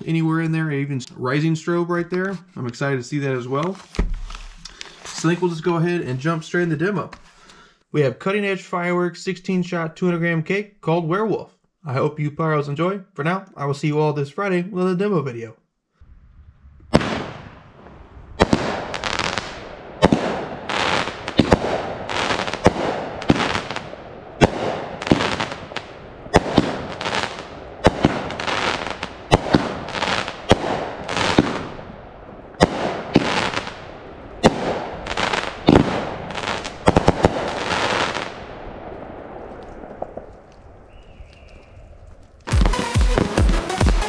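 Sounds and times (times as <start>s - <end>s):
fireworks crackling: 2.2s - 6.4s, 16.0s - 44.0s
fireworks launch thumps and bursts: 3.8s - 5.4s, 16.8s - 31.7s, 32.6s - 33.8s, 34.4s - 38.4s, 42.4s - 44.0s.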